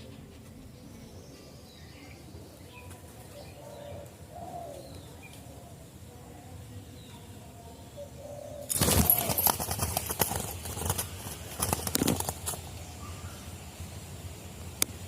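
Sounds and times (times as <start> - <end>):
small birds chirping faintly: 0.0 - 15.0
dove cooing: 1.3 - 6.1, 7.9 - 13.5.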